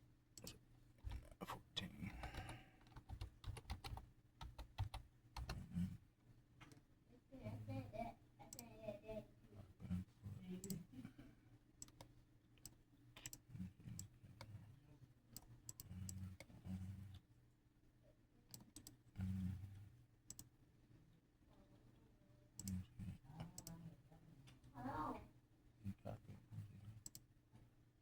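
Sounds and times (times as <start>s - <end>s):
faint irregular clicks: 2.1s - 6.0s, 6.6s - 6.9s, 11.8s - 14.6s, 18.5s - 19.0s, 20.3s - 20.6s, 26.9s - 27.7s.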